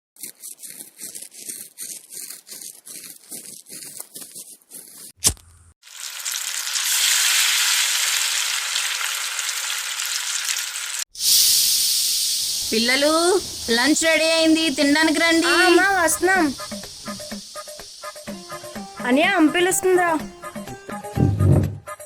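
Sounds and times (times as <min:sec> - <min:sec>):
food sizzling in hot oil: 0:05.8 - 0:20.8
rhythmic scraping or chopping: 0:12.6 - 0:21.9.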